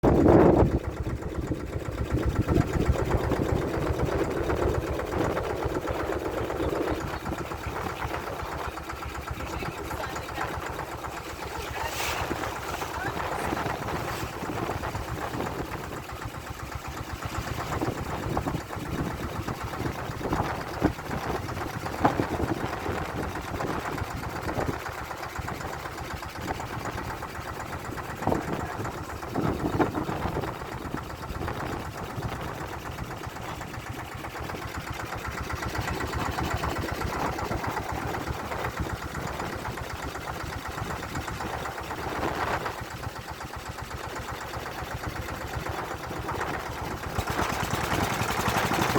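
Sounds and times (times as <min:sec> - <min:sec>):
boat engine chugging: 0:00.0 - 0:48.9.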